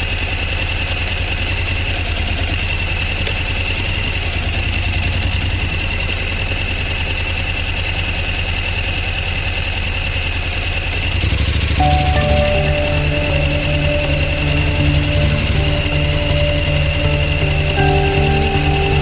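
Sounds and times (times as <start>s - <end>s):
motorcycle engine running: 0.0s - 19.0s
steady pitched tones: 11.8s - 19.0s.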